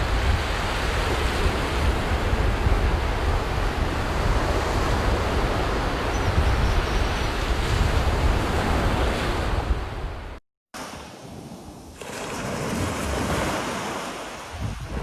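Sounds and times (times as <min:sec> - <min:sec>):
wind buffeting microphone: 0:00.0 - 0:10.4, 0:14.4 - 0:15.0
sea waves breaking on beach: 0:00.0 - 0:15.0.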